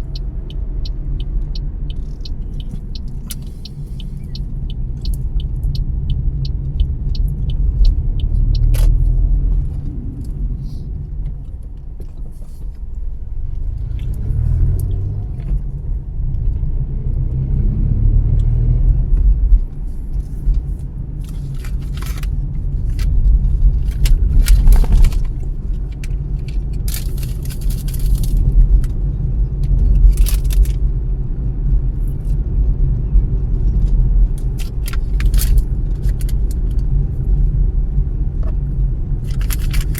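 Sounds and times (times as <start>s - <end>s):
car engine and tyre rumble: 0.0s - 39.9s
short clicks and rattles: 39.2s - 39.9s.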